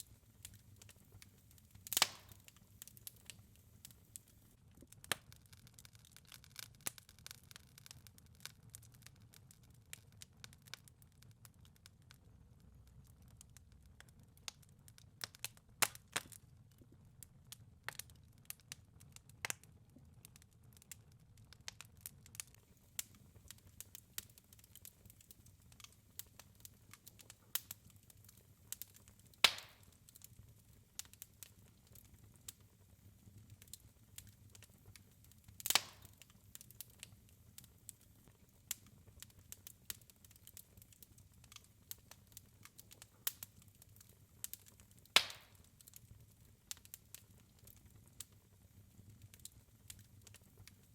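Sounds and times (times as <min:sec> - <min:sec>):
wood fire crackling: 0:00.0 - 0:50.9
loud fire pops: 0:00.4 - 0:04.0, 0:28.7 - 0:30.0, 0:35.6 - 0:37.7, 0:44.5 - 0:45.7.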